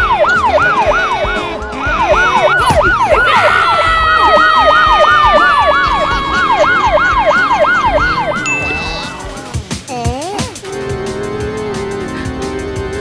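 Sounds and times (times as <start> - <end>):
police siren yelping: 0.0 - 9.4
wailing siren tone: 0.0 - 9.4.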